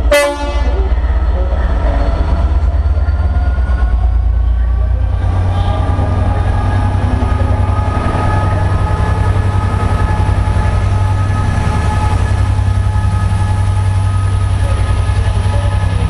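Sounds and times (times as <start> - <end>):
loud steady low hum: 5.0 - 16.0.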